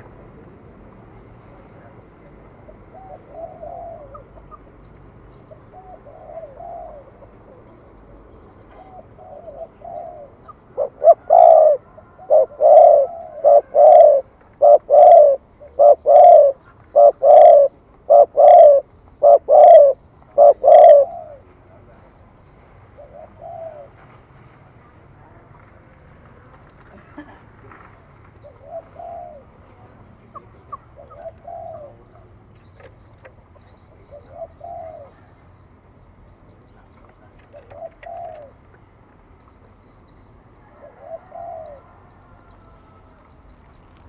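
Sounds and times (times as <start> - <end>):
dove cooing: 1.8 - 4.7, 5.5 - 7.9, 8.7 - 22.0, 22.9 - 24.1, 28.4 - 35.4, 36.6 - 39.0, 40.6 - 43.3.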